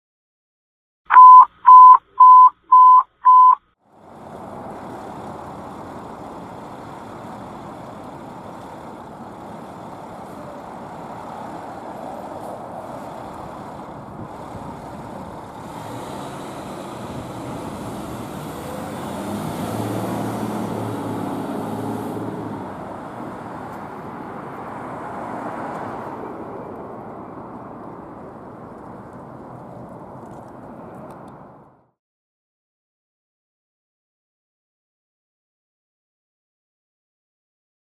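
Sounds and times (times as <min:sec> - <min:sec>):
loud electronic beeps: 0:01.1 - 0:03.6
road and traffic noise: 0:01.1 - 0:32.0
fire engine diesel engine: 0:01.7 - 0:31.9.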